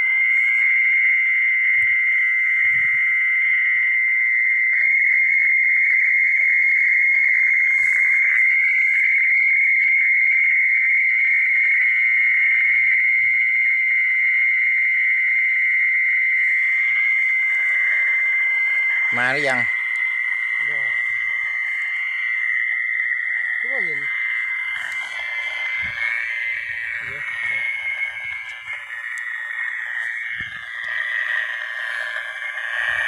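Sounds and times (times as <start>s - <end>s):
shrill chorus of night animals: 0.0s - 33.0s.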